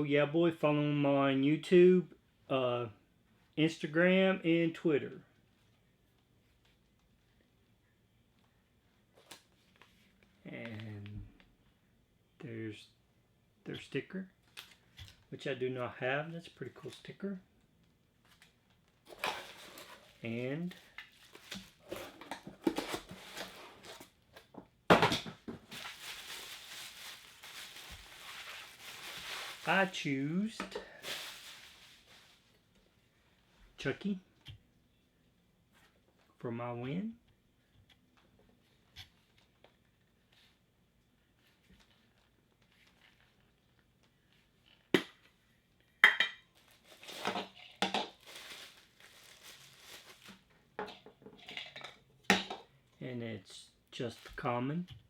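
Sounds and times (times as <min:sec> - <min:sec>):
packaging rustling: 0:19.1 - 0:24.2, 0:25.3 - 0:32.6, 0:46.6 - 0:50.5.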